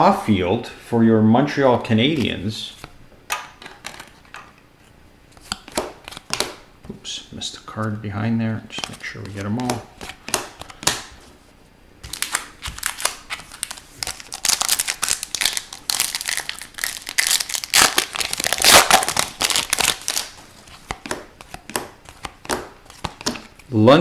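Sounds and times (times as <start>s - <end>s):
foil wrapper crinkling: 12.0s - 23.6s.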